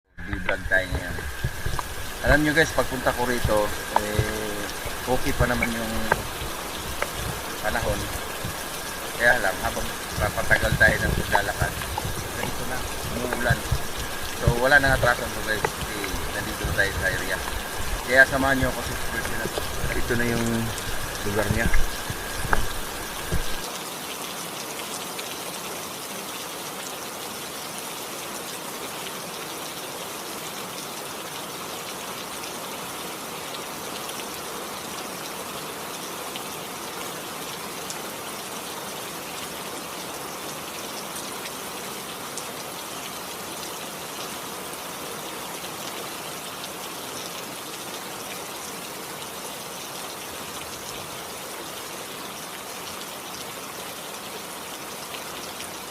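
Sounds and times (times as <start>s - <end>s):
steady rain hiss: 0.1s - 55.9s.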